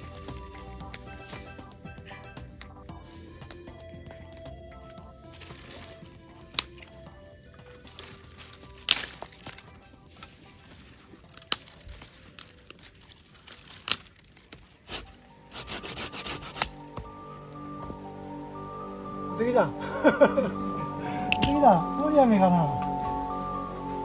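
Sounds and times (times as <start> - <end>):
crinkling: 0.0 - 18.1
soft background music: 0.0 - 24.0.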